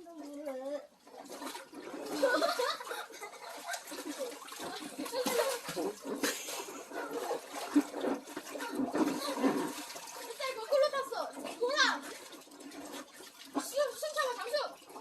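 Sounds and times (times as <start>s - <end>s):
water splashing in a pool: 0.0s - 15.0s
children's voices and laughter: 2.0s - 7.1s, 8.6s - 9.7s.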